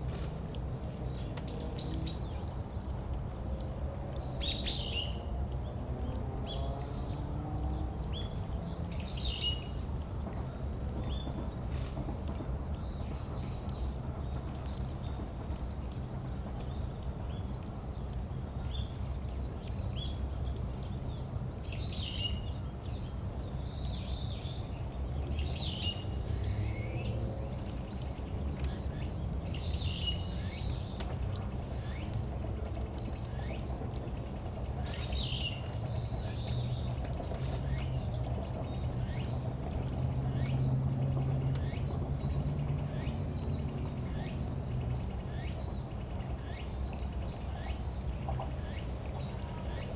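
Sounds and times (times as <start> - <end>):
high insect trill: 0.0 - 13.0, 23.7 - 49.9.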